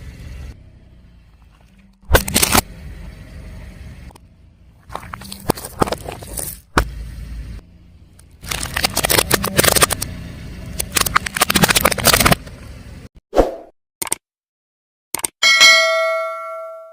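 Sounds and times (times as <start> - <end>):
car running hum: 0.0 - 13.1.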